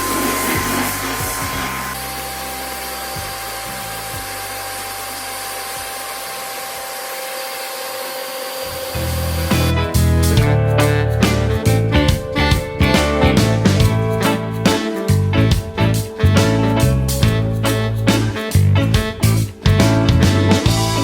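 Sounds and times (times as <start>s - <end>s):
background music: 0.0s - 6.3s, 8.9s - 21.0s
floor sanding machine whine: 0.0s - 9.7s
guitar music: 8.7s - 21.0s.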